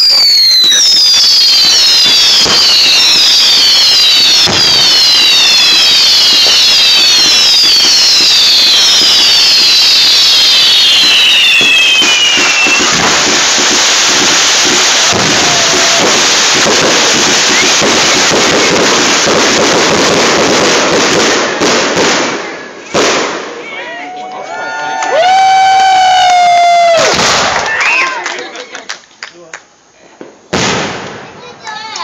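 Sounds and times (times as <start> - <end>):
firework whistles falling in pitch: 0.0 - 20.2
fireworks crackling: 0.0 - 24.2, 25.1 - 32.0.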